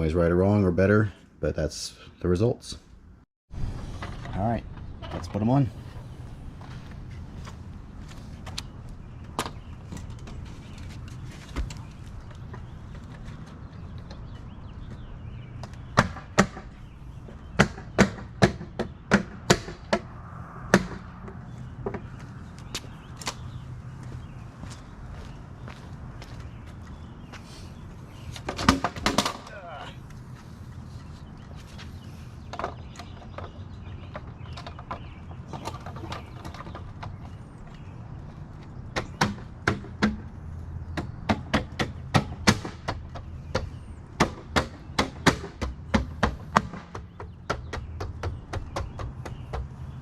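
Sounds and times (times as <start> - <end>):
steady low rumble: 2.8 - 15.6.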